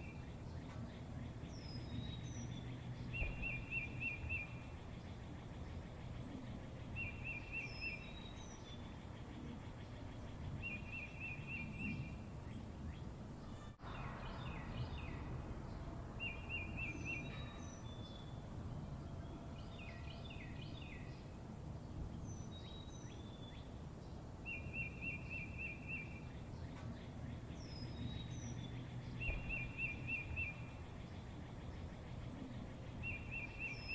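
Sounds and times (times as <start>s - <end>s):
birds singing and chirping: 0.0s - 33.9s
low background rumble: 11.7s - 22.9s.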